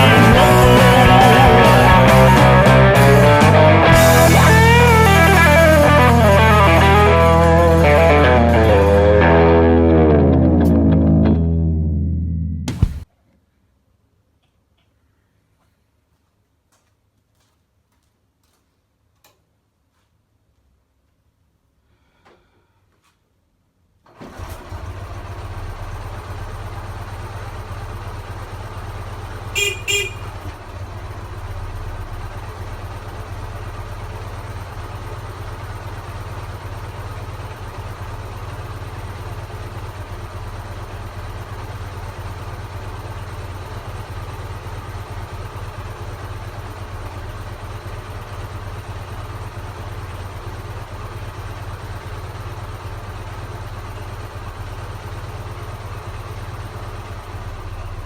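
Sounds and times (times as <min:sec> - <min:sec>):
motorcycle engine idling: 0:00.0 - 0:11.8, 0:12.6 - 0:13.0, 0:24.4 - 0:58.0
motorcycle horn beeps: 0:29.4 - 0:30.5.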